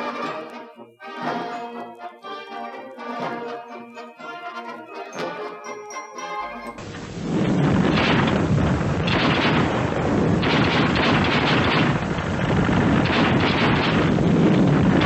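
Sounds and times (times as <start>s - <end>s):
explosions: 6.8s - 15.0s
gunfire: 7.2s - 15.0s.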